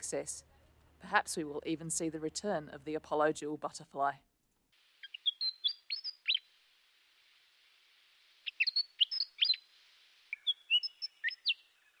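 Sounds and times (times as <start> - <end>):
faint hiss: 0.0 - 12.0
bird chirps and whistles: 5.0 - 6.5, 8.4 - 9.7, 10.3 - 12.0.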